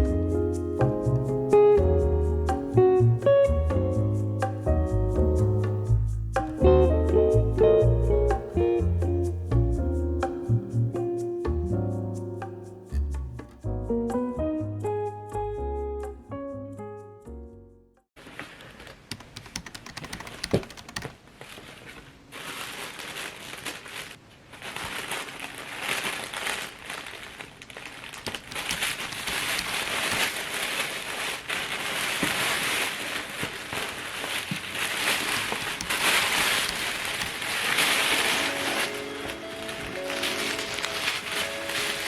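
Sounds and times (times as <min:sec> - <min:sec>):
packaging wrapping crinkling: 0:18.2 - 0:42.0
small clicks: 0:18.8 - 0:21.2, 0:35.6 - 0:37.5.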